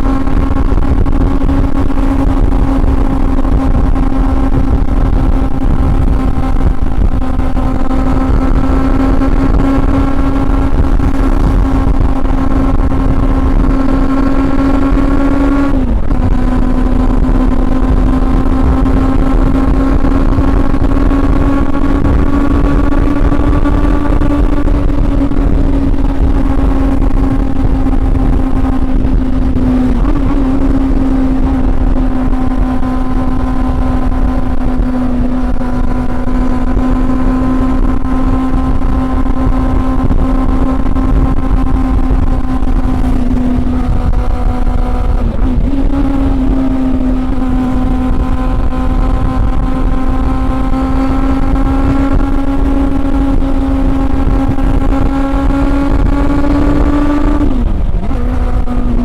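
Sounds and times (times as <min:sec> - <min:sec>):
motorcycle engine high pitch: 0:00.0 - 0:59.0.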